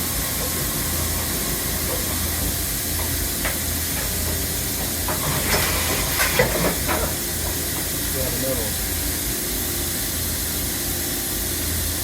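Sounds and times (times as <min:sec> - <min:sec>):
milling machine air hiss and hum: 0:00.0 - 0:12.0.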